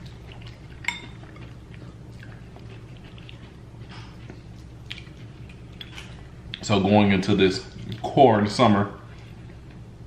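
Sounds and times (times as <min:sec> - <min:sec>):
chewing salad crunches: 0:00.0 - 0:06.8, 0:07.6 - 0:08.2
utensil clinking on plate: 0:00.8 - 0:01.5.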